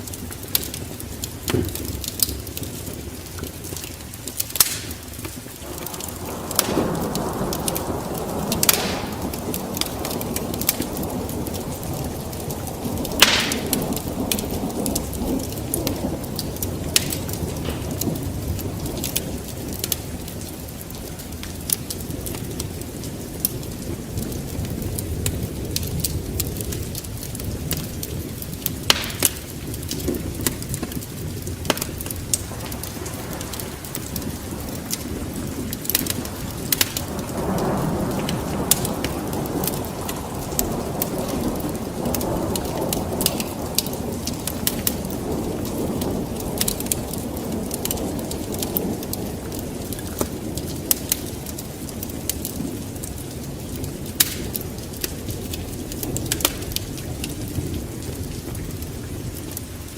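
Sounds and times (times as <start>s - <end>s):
steady rain: 0.0s - 59.9s
thunder rumbling: 0.0s - 59.9s
sharp pops: 4.5s - 5.9s, 8.5s - 9.9s, 13.2s - 13.8s, 28.9s - 29.4s.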